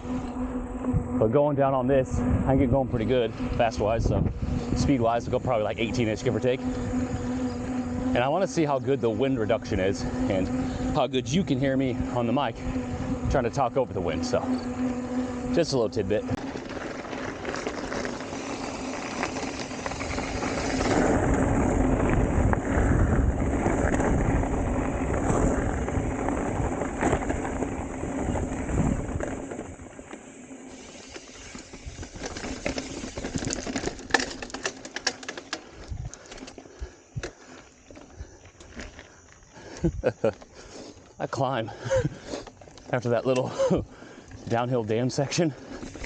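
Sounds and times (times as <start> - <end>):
wind rushing over microphone: 0.0 - 30.0, 35.8 - 36.3
bike rolling over dirt: 0.0 - 46.0
bike clicks and rattles: 3.0 - 46.0.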